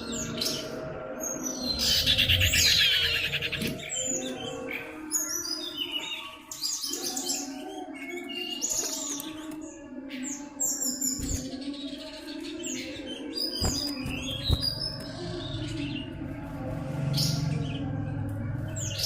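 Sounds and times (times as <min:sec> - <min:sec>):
bird chirping and whistling: 0:12.8 - 0:15.1.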